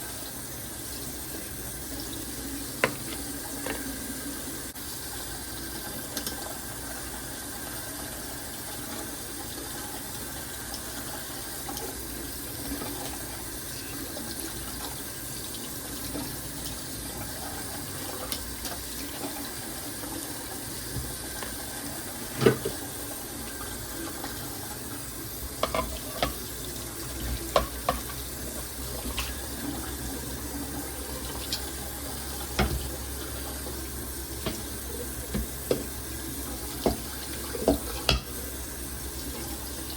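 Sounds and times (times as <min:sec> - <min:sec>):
tap running into sink: 0:02.6 - 0:04.0, 0:20.1 - 0:23.0, 0:25.5 - 0:38.5
dishes knocking and clinking: 0:02.8 - 0:03.9, 0:25.6 - 0:26.4, 0:27.2 - 0:28.2, 0:32.5 - 0:32.9, 0:36.8 - 0:38.4.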